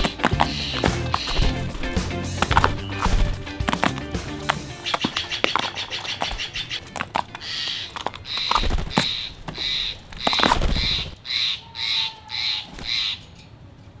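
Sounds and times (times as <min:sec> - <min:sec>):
low rumbles: 0:00.0 - 0:05.6
jay harsh rasping calls: 0:00.0 - 0:13.3.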